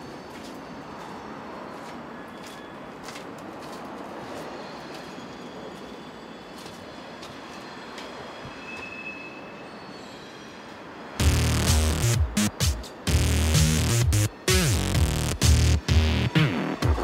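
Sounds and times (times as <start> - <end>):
high squeal: 4.4 - 12.1
loud electronic music: 11.2 - 17.0
steady rumbling noise: 11.2 - 17.0.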